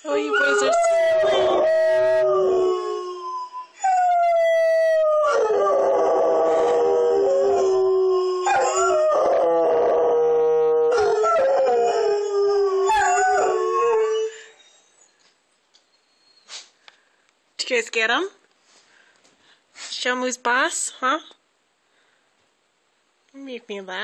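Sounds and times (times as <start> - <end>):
dogs howling: 0.1 - 14.5.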